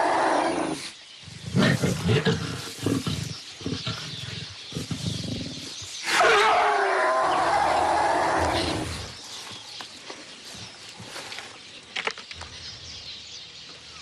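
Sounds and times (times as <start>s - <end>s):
animal growling: 0.0s - 9.2s.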